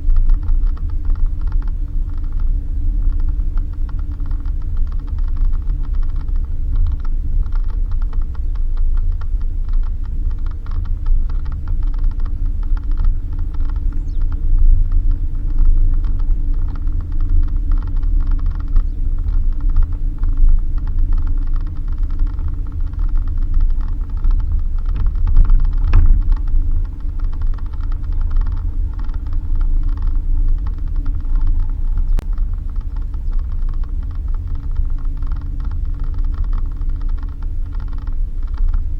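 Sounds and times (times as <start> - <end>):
car engine and tyres rumbling: 0.0 - 38.9
creaking and rattling over bumps: 0.0 - 38.9.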